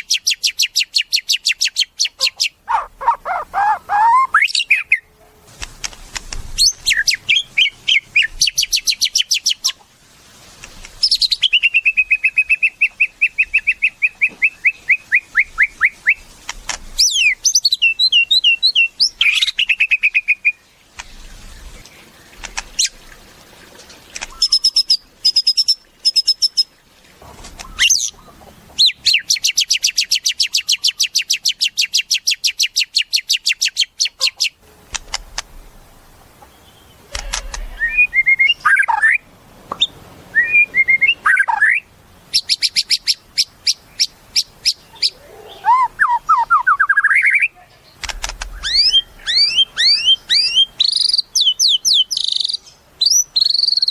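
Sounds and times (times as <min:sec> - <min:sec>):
bird singing trills and whistles: 0:00.0 - 0:05.1, 0:06.6 - 0:09.8, 0:11.0 - 0:16.2, 0:17.0 - 0:20.6, 0:24.3 - 0:26.7, 0:36.7 - 0:47.6, 0:48.3 - 0:53.9.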